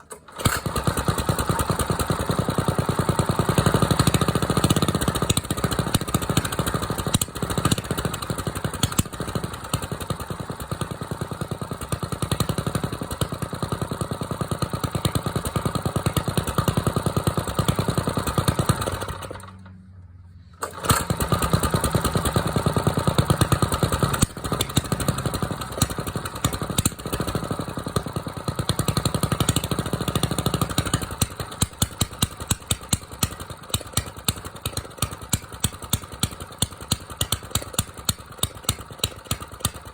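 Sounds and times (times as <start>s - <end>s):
small engine running fast: 20.6s - 39.9s.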